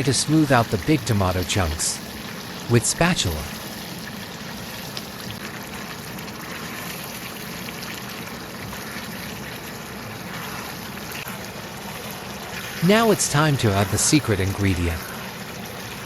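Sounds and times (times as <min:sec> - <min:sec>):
gravy sizzling in a wok: 0:00.0 - 0:16.0.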